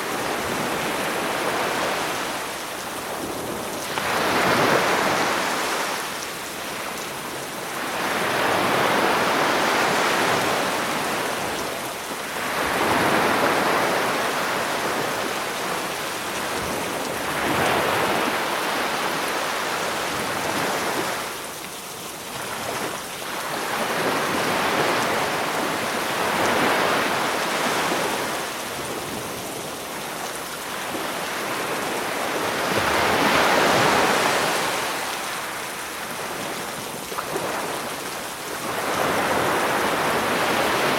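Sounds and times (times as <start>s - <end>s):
sea waves breaking: 0.0s - 21.6s, 22.2s - 40.9s
rain hiss: 0.0s - 40.9s.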